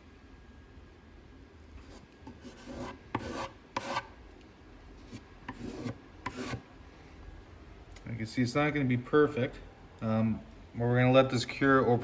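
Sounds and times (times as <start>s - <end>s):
wood filler scraping into holes: 1.8s - 4.1s, 5.0s - 6.6s.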